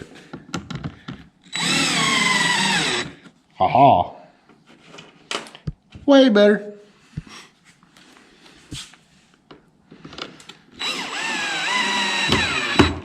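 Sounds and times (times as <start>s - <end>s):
cordless drill driving a screw: 1.5s - 3.2s, 10.8s - 13.0s.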